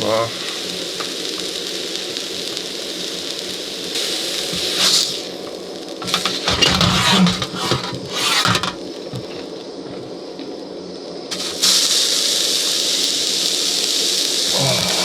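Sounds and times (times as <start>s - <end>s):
steak sizzling: 0.0s - 15.0s
metal utensil scraping a pan: 6.0s - 8.8s.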